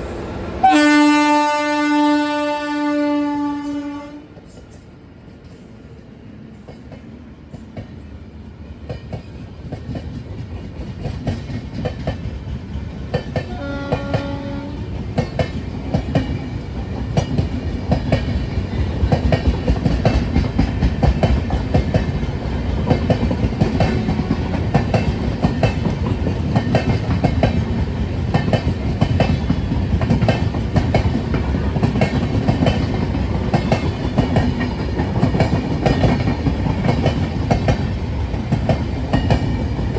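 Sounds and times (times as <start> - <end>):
train horn blast: 0.6 - 4.4, 13.5 - 14.9
train wheels clicking over rail joints: 4.4 - 39.9.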